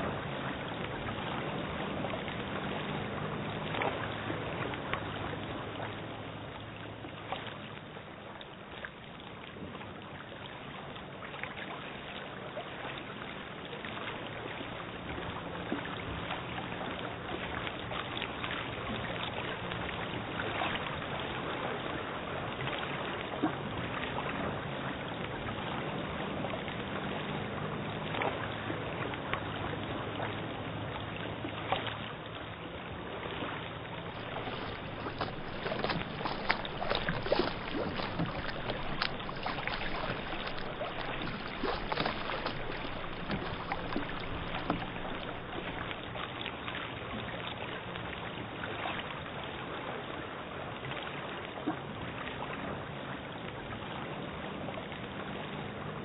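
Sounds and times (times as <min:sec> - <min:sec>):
faint low hum: 0:24.9 - 0:46.3.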